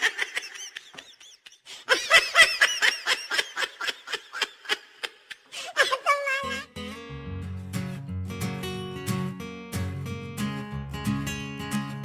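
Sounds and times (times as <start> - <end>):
short high-pitched laughing: 4.9 - 6.7.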